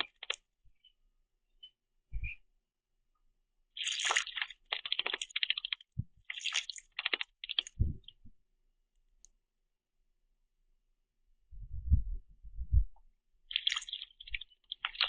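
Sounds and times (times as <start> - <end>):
bird splashing in water: 3.8 - 7.8
dull low thuds: 7.8 - 8.1, 11.6 - 13.0.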